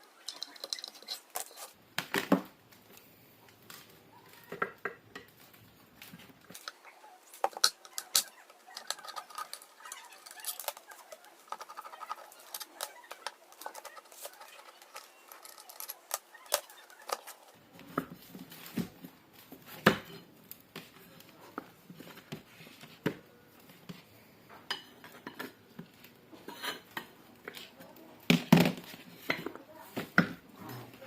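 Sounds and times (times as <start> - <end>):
hard parts clicking and clattering: 0.0 - 2.5, 4.4 - 19.0.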